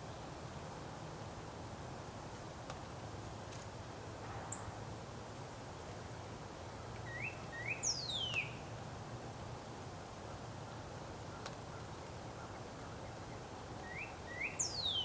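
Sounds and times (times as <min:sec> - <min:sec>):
low hum and hiss: 0:00.0 - 0:15.0
songbird calling: 0:07.0 - 0:08.7, 0:11.3 - 0:15.0.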